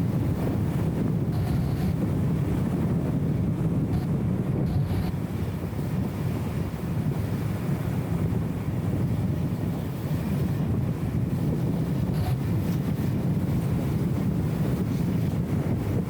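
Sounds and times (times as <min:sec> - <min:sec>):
road noise: 0:01.3 - 0:02.1, 0:03.4 - 0:05.4.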